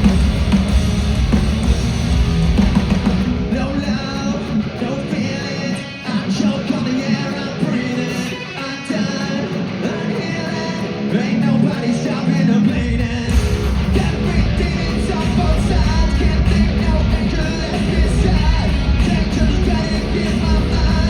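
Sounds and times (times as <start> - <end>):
heavy bass and drums: 0.0 - 5.2, 12.7 - 21.0
distorted electric guitars: 0.0 - 21.0
person singing: 3.4 - 21.0.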